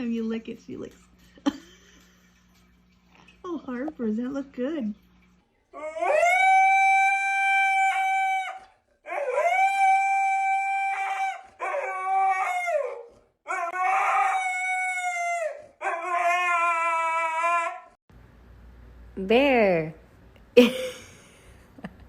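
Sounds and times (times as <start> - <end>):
dog howling: 5.7 - 18.0.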